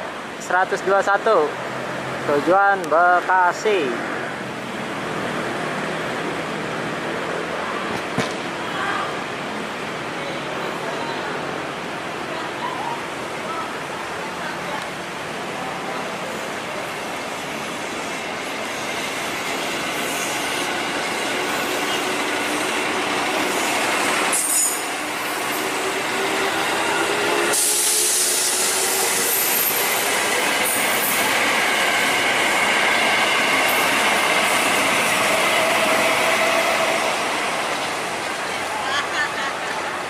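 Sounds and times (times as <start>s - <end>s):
train wheels rumbling on rail: 16.1s - 40.0s
high wheel squeal: 24.3s - 31.2s.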